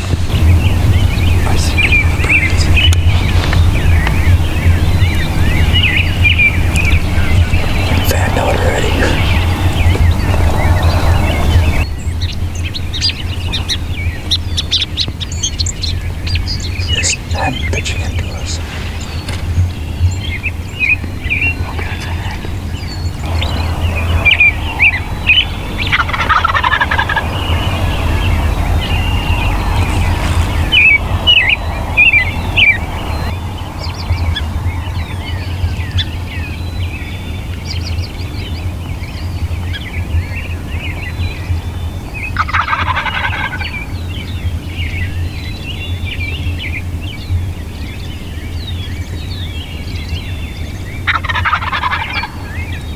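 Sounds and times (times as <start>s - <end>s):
songbirds chirping: 0.0s - 52.9s
steady low hum: 15.2s - 42.3s
turkey gobbling: 23.3s - 33.3s, 42.4s - 43.8s, 51.0s - 52.6s.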